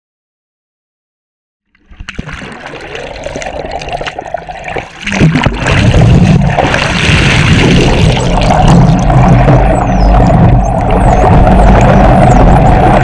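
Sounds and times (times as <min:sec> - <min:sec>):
water sloshing and bubbling: 0:01.7 - 0:13.0
steady low rumble: 0:05.1 - 0:13.0.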